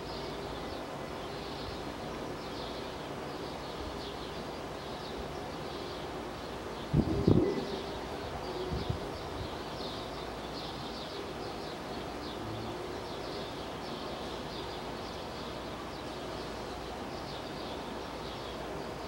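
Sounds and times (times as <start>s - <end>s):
steady outdoor hum: 0.0s - 19.0s
low-pitched bird call: 6.9s - 8.7s.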